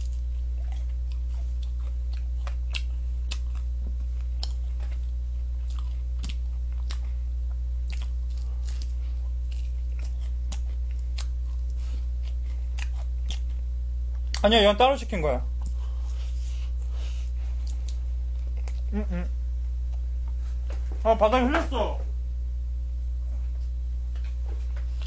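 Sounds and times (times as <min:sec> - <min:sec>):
fried chicken crunching: 0:00.0 - 0:07.1, 0:07.8 - 0:13.6
chewing close to microphone: 0:00.0 - 0:07.2, 0:07.8 - 0:14.4, 0:17.5 - 0:18.9
steady low hum: 0:00.0 - 0:25.0.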